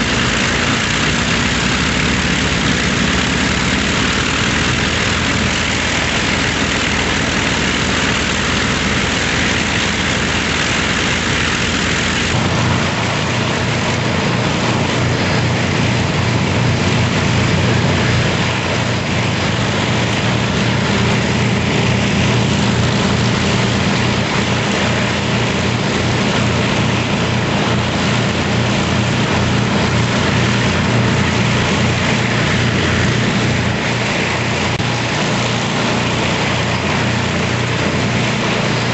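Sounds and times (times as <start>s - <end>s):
propeller aircraft engines droning: 0.0s - 38.9s.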